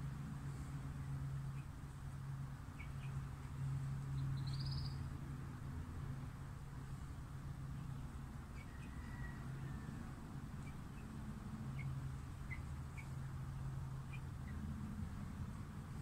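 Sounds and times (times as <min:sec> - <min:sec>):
low steady hum: 0:00.0 - 0:16.0
high bird chirps: 0:04.2 - 0:05.0
faint bird whistle: 0:04.4 - 0:05.0.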